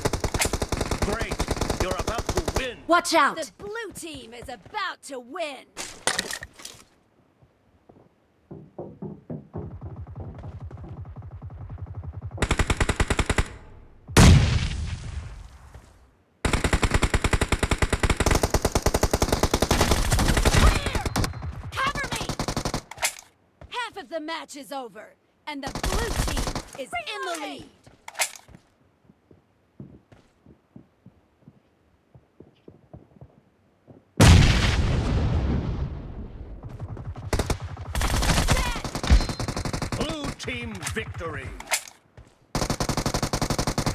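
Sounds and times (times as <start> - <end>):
video game automatic gunfire: 0.0 - 2.8, 9.7 - 13.6, 25.7 - 26.7, 36.6 - 41.5, 42.5 - 43.9.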